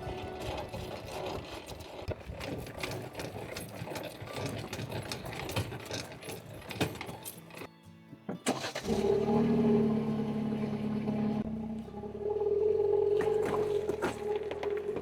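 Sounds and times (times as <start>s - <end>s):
car engine droning: 8.5s - 15.0s.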